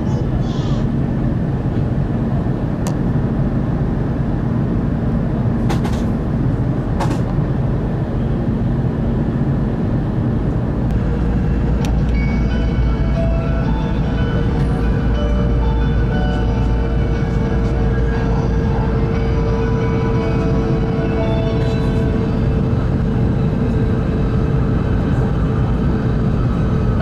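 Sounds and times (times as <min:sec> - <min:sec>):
train rumbling at speed: 0:00.0 - 0:27.0
music: 0:11.5 - 0:23.6.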